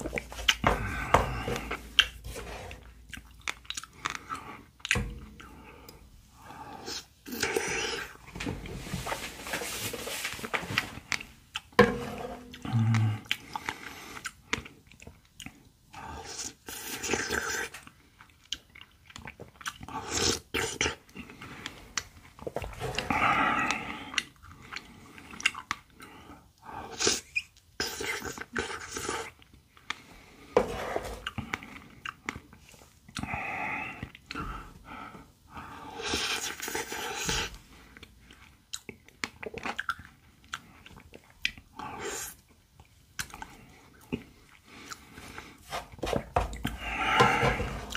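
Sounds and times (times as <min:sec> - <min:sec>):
wet chewing: 0:00.0 - 0:06.0, 0:16.3 - 0:26.2.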